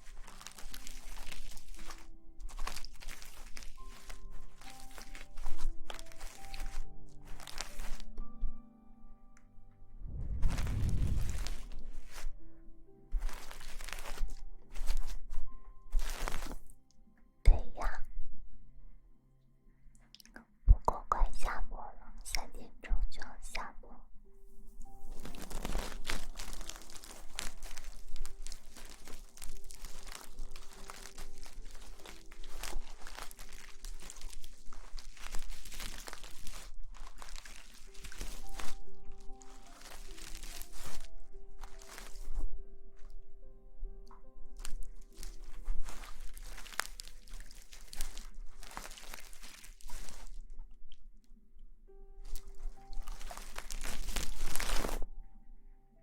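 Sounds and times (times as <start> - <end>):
close crinkling rustling: 0.0 - 8.4, 10.5 - 12.4, 13.1 - 16.8, 24.6 - 43.3, 44.0 - 51.0, 52.2 - 55.1.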